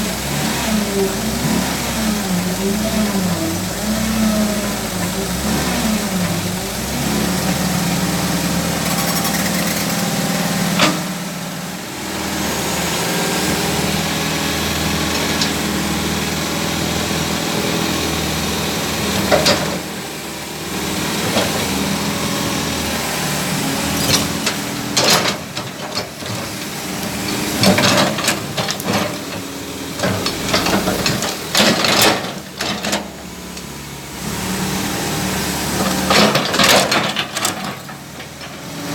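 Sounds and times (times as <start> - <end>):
excavator diesel engine running: 0.0 - 38.9
sharp knocks and clatter: 24.0 - 26.6.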